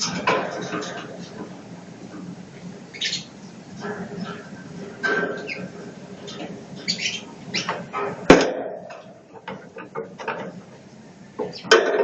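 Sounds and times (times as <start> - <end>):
budgerigars chirping: 2.9 - 3.3, 6.8 - 7.8.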